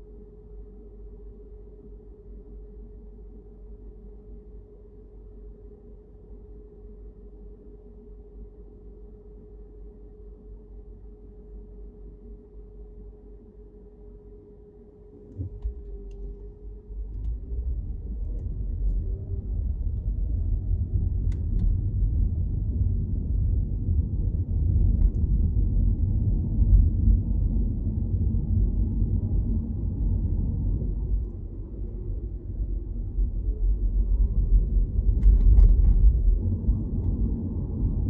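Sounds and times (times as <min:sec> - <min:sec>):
car road and engine rumble: 0:15.2 - 0:38.0.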